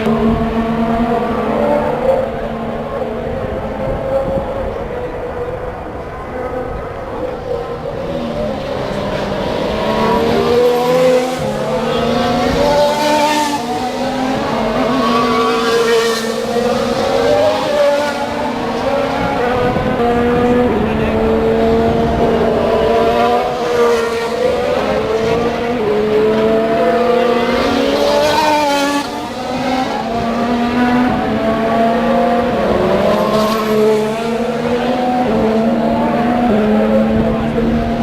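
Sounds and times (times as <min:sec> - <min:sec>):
racing car engines at high revs: 0:00.0 - 0:38.0
racing car passing close: 0:00.0 - 0:38.0.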